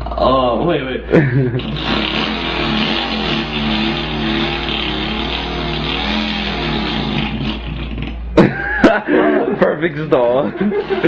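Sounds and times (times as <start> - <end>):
man imitating an engine: 1.6 - 8.5.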